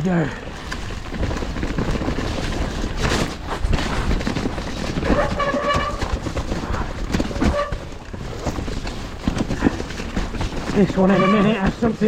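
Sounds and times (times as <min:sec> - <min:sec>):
bike clattering over rough ground: 0:00.1 - 0:12.0.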